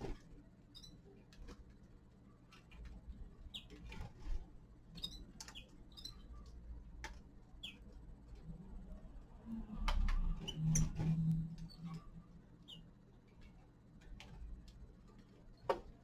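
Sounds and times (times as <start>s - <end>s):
finches chirping: 0.0s - 1.3s, 2.6s - 6.6s, 7.5s - 8.0s, 10.3s - 13.6s
beaks pecking on seed: 2.4s - 8.2s.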